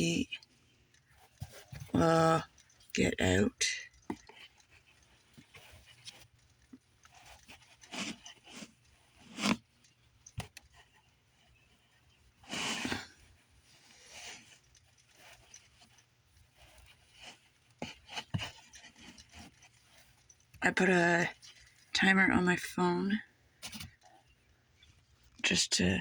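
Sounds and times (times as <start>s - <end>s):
rustling and crinkling: 0.0s - 25.5s.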